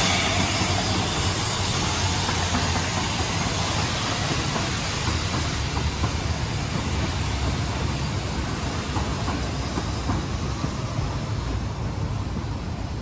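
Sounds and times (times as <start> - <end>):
train coaches rumbling past: 0.0 - 13.0
wheels clicking over rails: 0.0 - 13.0.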